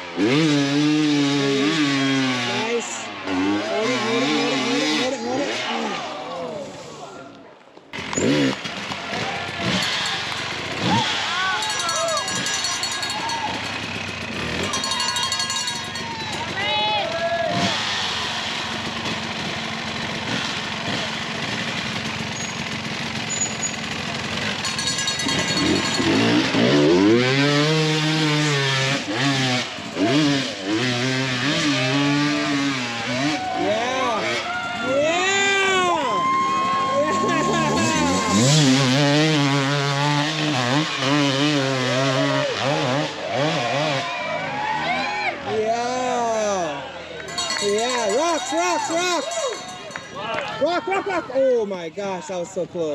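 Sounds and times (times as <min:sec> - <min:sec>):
off-road motorcycle engine running: 0:08.0 - 0:44.5.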